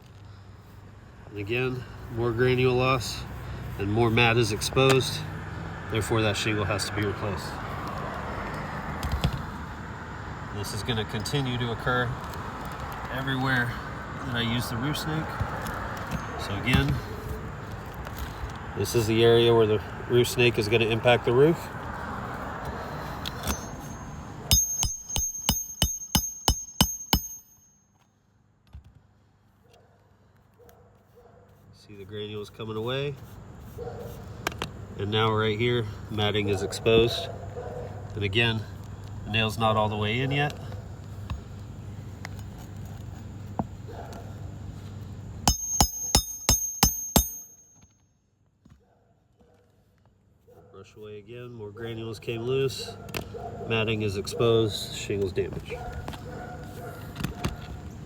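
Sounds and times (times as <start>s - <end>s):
hammer striking metal: 23.4s - 27.8s, 45.5s - 47.9s.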